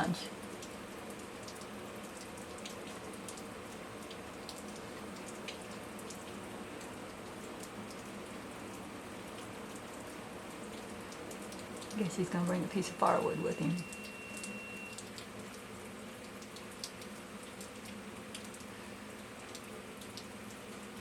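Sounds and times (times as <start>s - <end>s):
low steady hum: 0.0s - 15.2s
rain patter: 0.0s - 21.0s
water drips ticking: 0.0s - 21.0s.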